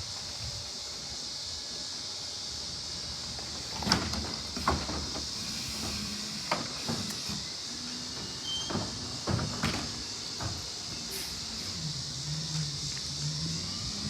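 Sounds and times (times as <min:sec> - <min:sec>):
steady high hiss: 0:00.0 - 0:14.0
garbage truck knocks and clanks: 0:03.5 - 0:11.5.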